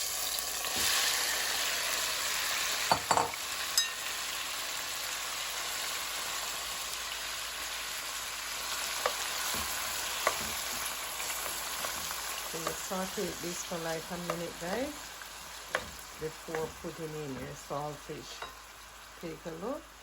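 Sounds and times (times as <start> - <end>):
vegetables sizzling in a pot: 0.0 - 20.0
spoon knocking against pot: 9.0 - 10.8, 15.7 - 17.5.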